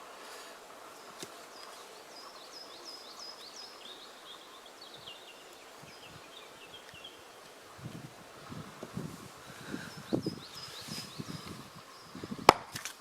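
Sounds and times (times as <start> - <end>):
songbird chirping: 0.0 - 13.0
steady outdoor hiss: 0.0 - 13.0.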